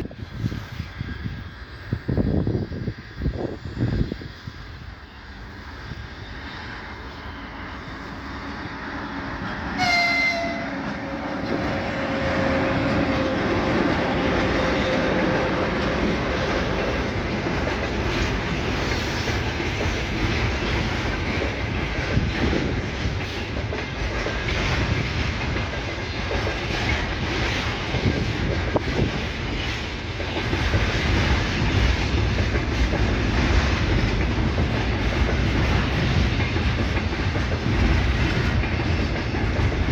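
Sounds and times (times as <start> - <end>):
train wheels clattering over rail joints: 3.5 - 39.9
train horn: 9.0 - 17.0.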